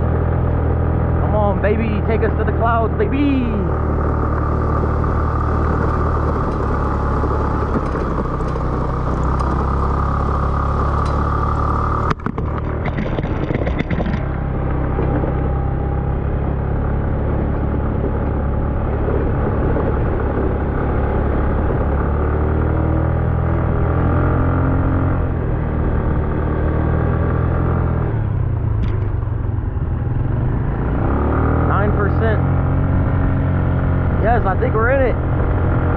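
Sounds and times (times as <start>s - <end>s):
motorcycle engine under load: 0.0s - 35.9s
brief clatter: 12.0s - 14.4s.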